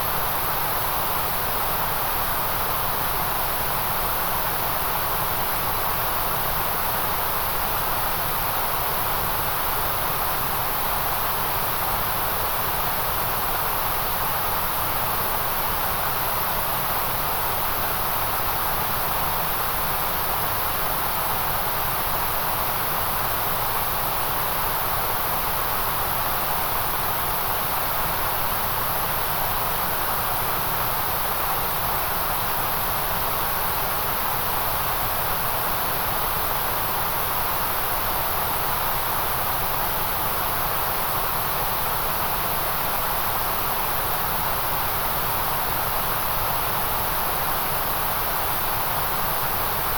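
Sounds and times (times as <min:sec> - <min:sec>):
steady white noise hiss: 0:00.0 - 0:49.9.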